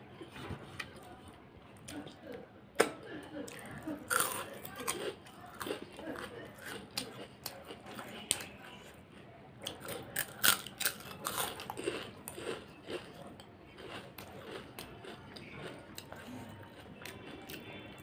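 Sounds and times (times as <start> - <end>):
chewing clicks: 9.6 - 17.6
crisp food being crunched: 9.7 - 13.1.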